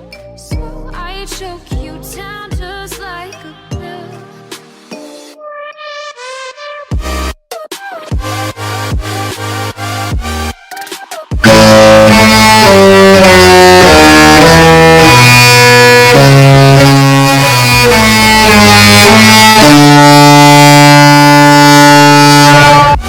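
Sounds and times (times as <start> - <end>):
musical ship horn tune: 11.4 - 23.0.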